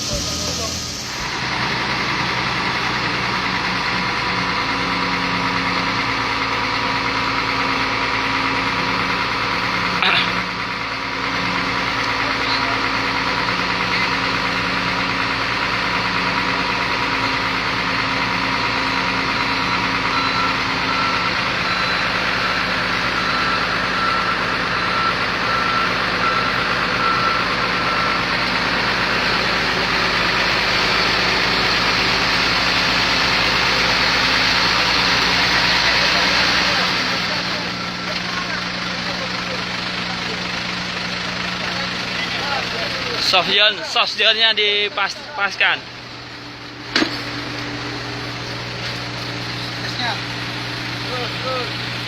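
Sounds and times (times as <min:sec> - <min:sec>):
diesel engine running: 0:00.0 - 0:52.0
warning alarm beeps: 0:18.3 - 0:28.4.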